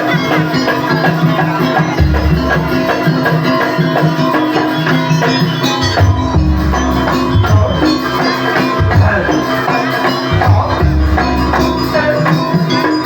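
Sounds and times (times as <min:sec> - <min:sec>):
drums: 0:00.0 - 0:13.0
gamelan music: 0:00.0 - 0:13.0
tuned metal percussion: 0:00.0 - 0:13.0
deep low notes: 0:06.0 - 0:08.1, 0:10.3 - 0:12.1.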